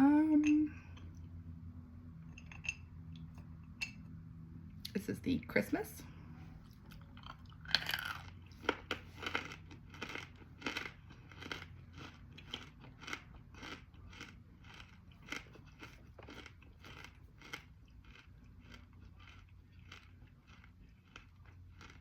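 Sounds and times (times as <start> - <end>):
crunchy chewing: 6.6 - 22.0.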